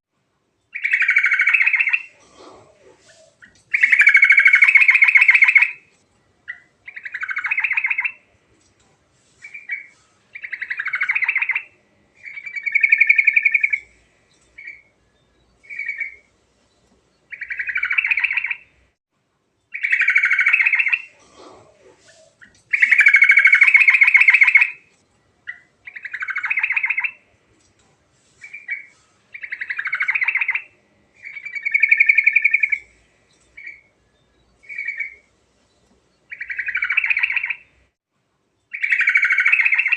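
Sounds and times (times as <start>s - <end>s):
bulbul singing: 0.7s - 2.2s, 3.0s - 5.8s, 6.5s - 8.3s, 9.4s - 16.3s, 19.7s - 24.8s, 25.4s - 27.2s, 28.4s - 35.3s, 36.2s - 37.8s.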